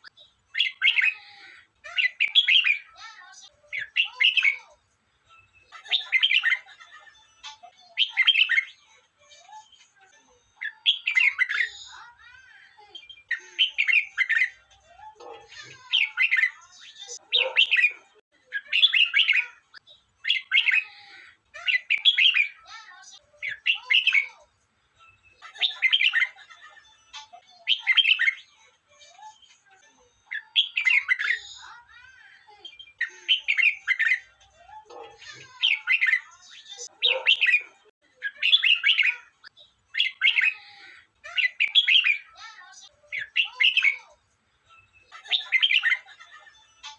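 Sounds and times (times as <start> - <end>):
bulbul singing: 10.5 - 28.5, 30.2 - 39.3.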